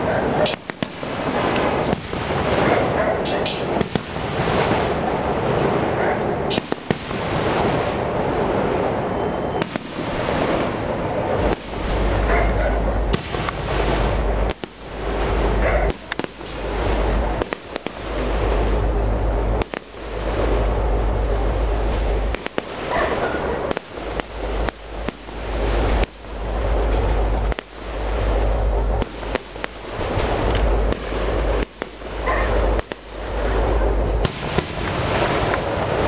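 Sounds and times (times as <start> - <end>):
continuous noisy din: 0.0 - 36.0
deep low rumble: 0.0 - 36.0
firework shells bursting: 19.6 - 20.0, 22.3 - 22.8, 23.6 - 26.2, 29.0 - 33.1.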